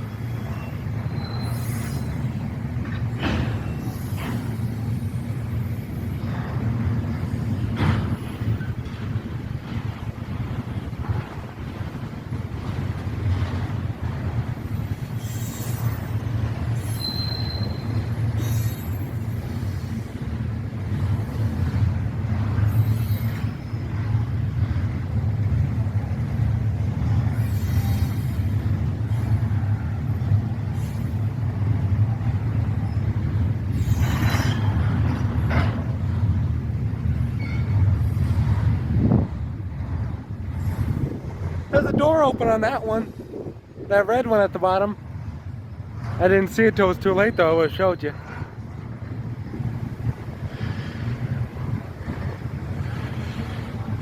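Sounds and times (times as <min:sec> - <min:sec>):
train wheels screeching: 0:00.0 - 0:09.1, 0:14.3 - 0:24.3, 0:27.0 - 0:36.2, 0:37.2 - 0:38.8, 0:40.4 - 0:43.5, 0:46.0 - 0:54.0
freight train cars rumbling: 0:00.0 - 0:54.0.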